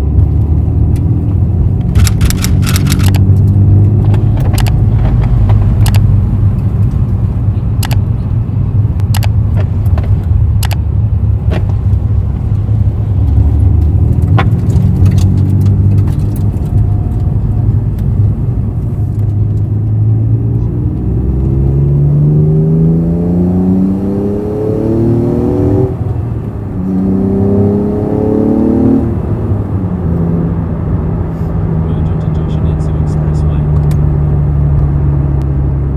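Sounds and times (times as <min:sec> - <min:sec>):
car engine accelerating: 0:00.0 - 0:35.9
sharp clicks: 0:01.8 - 0:07.2, 0:07.8 - 0:08.2, 0:09.0 - 0:10.8.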